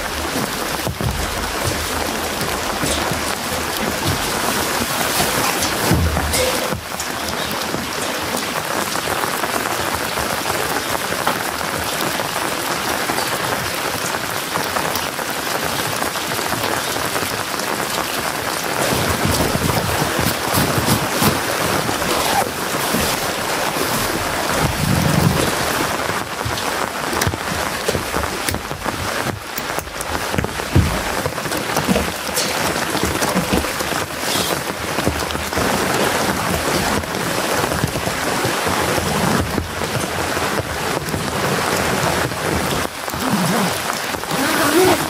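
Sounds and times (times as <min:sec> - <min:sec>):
low rumbles: 0:00.0 - 0:08.6
steady rain falling: 0:00.0 - 0:45.0.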